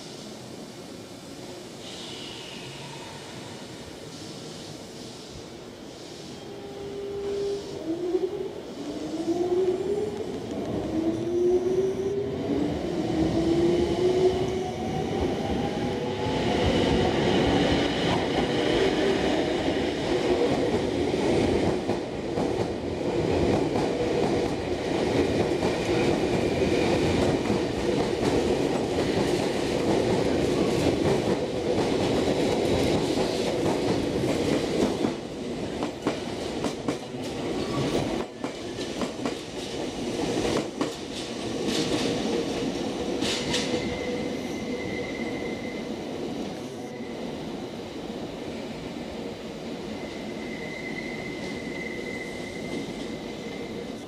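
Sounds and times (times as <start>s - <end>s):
train rumbling: 6.4s - 48.0s.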